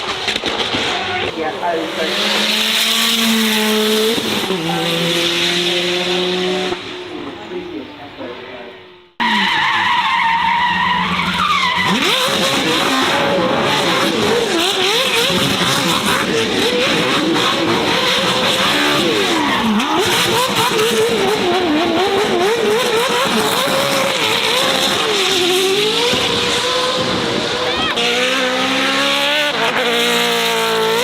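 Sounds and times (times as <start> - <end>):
car engine at high revs: 0.0 - 8.4, 9.1 - 31.0
tyres squealing and skidding: 9.2 - 31.0.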